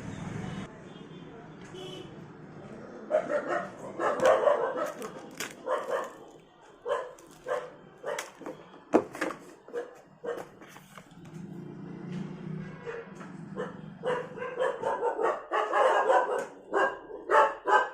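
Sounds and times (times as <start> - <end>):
dog barking: 3.1 - 8.4, 9.7 - 10.5, 12.8 - 17.9.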